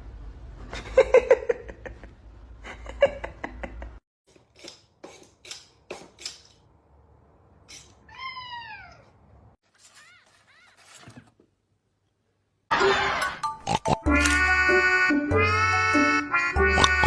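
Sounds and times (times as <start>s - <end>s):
cat meowing: 8.1s - 9.2s.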